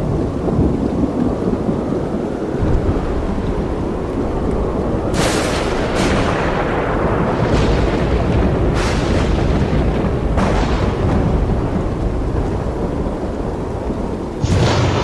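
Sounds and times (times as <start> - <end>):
thunder rumble: 0.0 - 15.0.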